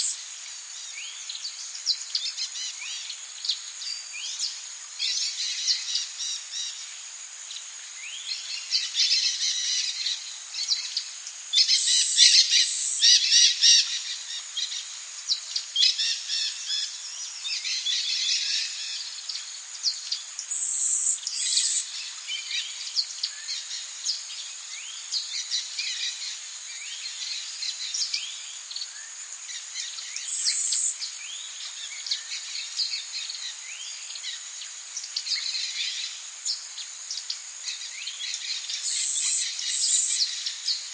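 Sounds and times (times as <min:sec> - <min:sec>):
high-pitched insect drone: 0:20.5 - 0:21.9, 0:30.2 - 0:31.0, 0:38.5 - 0:40.5
birds chirping and calling: 0:30.2 - 0:30.9, 0:38.9 - 0:40.4.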